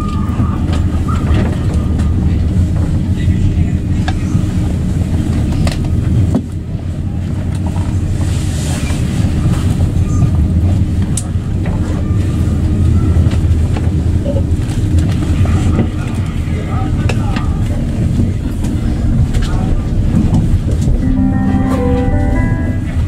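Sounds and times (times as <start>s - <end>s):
train rumbling at speed: 0.0s - 23.0s.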